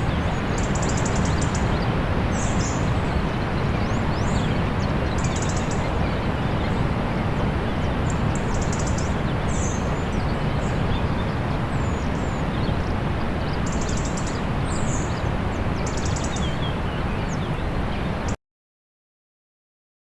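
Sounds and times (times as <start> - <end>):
small birds chirping and trilling: 0.0 - 18.4.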